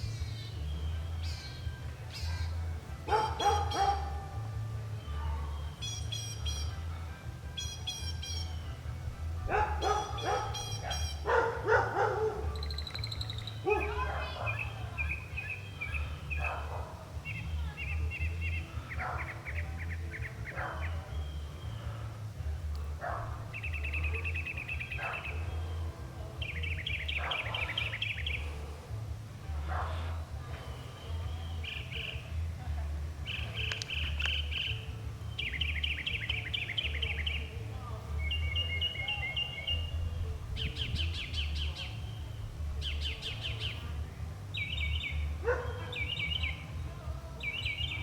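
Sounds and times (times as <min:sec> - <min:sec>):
mockingbird singing: 0:05.0 - 0:06.8, 0:07.6 - 0:08.7, 0:09.5 - 0:22.0, 0:23.3 - 0:28.7, 0:30.9 - 0:32.4, 0:33.2 - 0:48.0.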